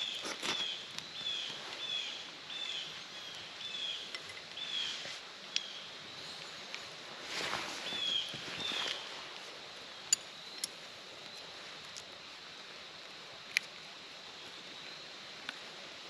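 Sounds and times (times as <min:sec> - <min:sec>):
rustling: 0:00.0 - 0:02.0, 0:06.4 - 0:09.6.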